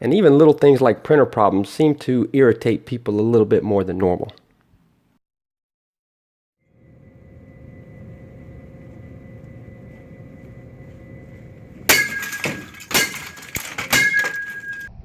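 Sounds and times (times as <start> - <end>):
faint steady hum: 6.7 - 14.9
hard blows cracking and breaking: 11.9 - 14.9.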